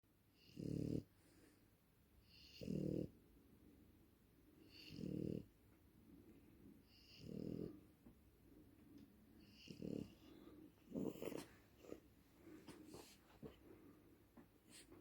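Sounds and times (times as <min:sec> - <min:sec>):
dog snoring: 0:00.4 - 0:01.1, 0:02.2 - 0:03.2, 0:04.6 - 0:05.6, 0:06.8 - 0:07.9, 0:09.4 - 0:12.0.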